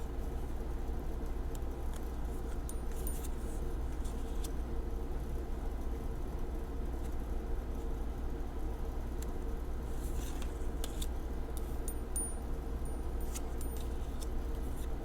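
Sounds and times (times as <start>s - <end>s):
low background hum: 0.0s - 15.0s
cards sliding and clicking: 10.0s - 11.2s.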